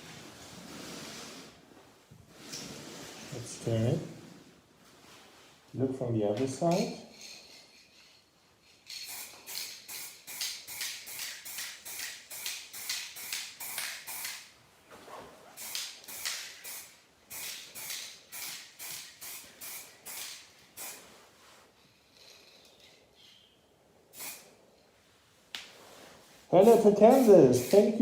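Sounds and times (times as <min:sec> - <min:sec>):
aerosol spray can hissing: 0:09.0 - 0:14.5, 0:15.6 - 0:21.1, 0:24.1 - 0:24.5, 0:26.6 - 0:28.0.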